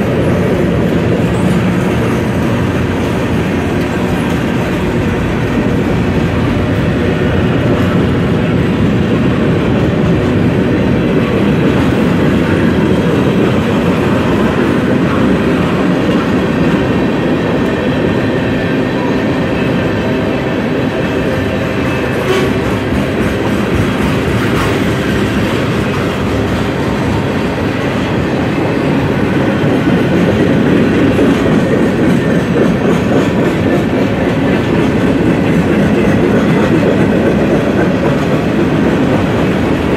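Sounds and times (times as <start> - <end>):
train cars clattering: 0.0 - 39.9
train wheels rumbling on rails: 0.0 - 39.9.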